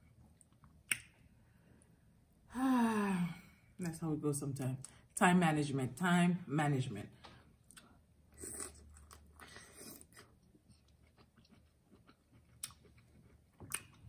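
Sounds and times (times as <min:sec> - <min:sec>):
chewing and wet mouth smacks: 0:07.6 - 0:14.0.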